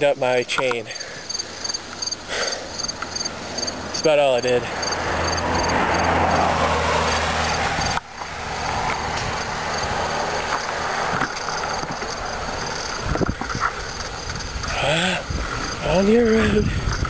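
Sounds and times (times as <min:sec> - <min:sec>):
insects chirping: 0:00.0 - 0:17.0
wind and road noise: 0:00.0 - 0:17.0.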